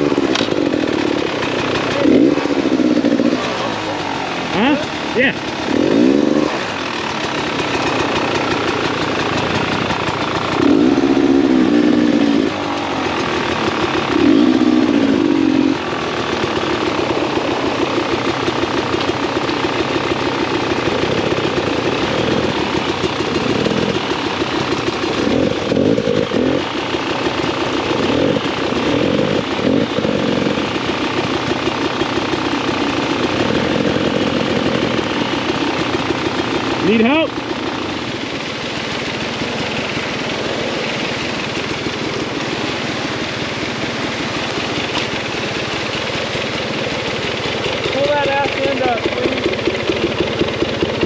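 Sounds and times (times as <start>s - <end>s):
dirt bike engine revving: 0.0s - 51.0s.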